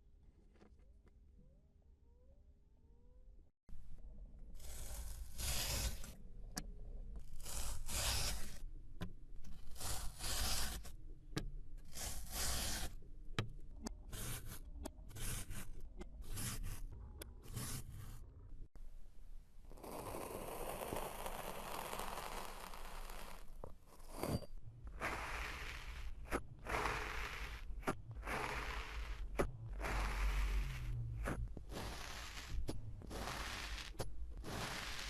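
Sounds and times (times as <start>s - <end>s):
scraping strokes: 19.8s - 35.0s.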